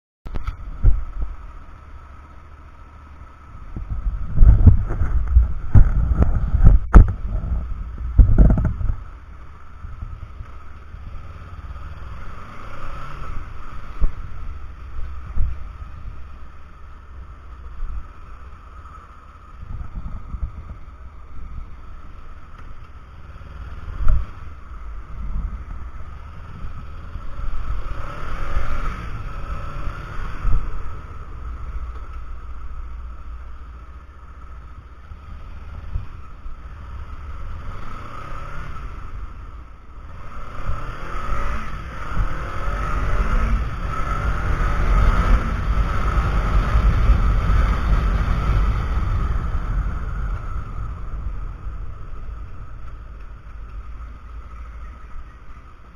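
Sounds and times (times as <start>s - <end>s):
motorcycle engine revving: 0.4s - 55.9s
wind buffeting on microphone: 3.7s - 9.1s.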